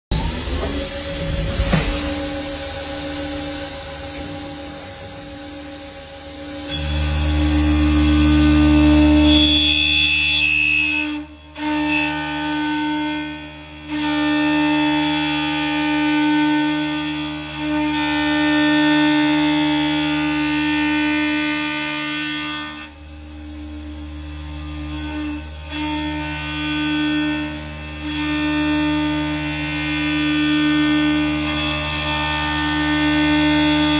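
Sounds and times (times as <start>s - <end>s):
low hum: 0.1s - 16.0s
mill spindle high whine: 0.1s - 33.9s.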